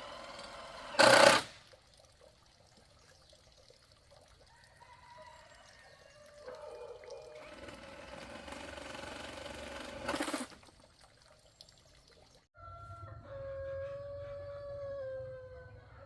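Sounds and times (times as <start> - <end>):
rooster crowing: 4.5 - 7.4, 12.6 - 16.0.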